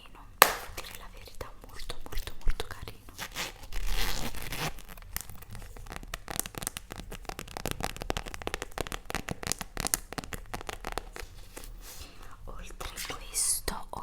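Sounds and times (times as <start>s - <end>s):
packaging crinkling: 3.1s - 12.3s.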